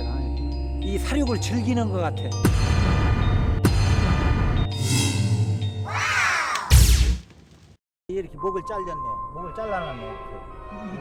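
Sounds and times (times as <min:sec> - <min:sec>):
loud deep hit: 0:06.7 - 0:07.3.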